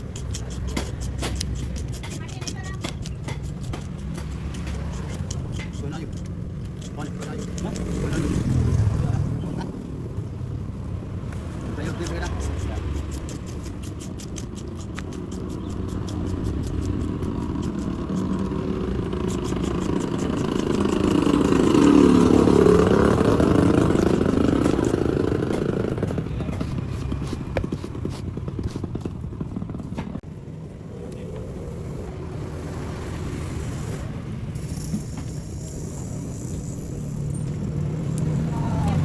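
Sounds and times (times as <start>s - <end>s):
vehicle engine passing by: 6.9s - 12.9s, 16.9s - 39.0s.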